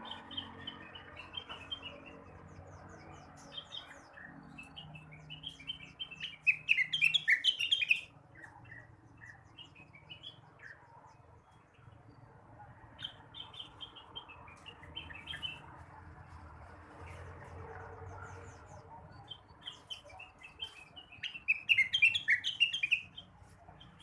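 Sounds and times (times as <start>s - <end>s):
bird chirping and whistling: 5.4s - 8.1s, 21.2s - 23.1s.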